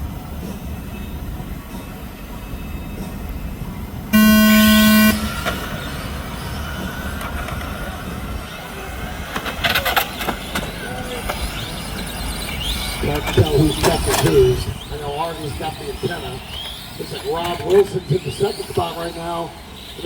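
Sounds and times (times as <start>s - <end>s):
loud buzzer horn tone: 4.2s - 5.8s.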